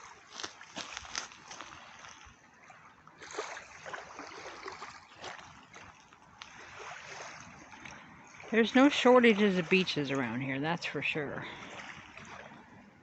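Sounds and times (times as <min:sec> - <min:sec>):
small waves lapping and splashing: 0:00.0 - 0:13.0.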